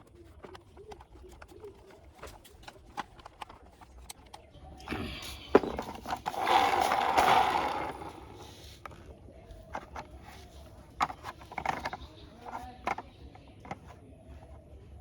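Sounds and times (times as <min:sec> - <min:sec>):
plastic toy parts clicking: 0:00.0 - 0:14.5
rattling scraping noise: 0:04.9 - 0:08.9.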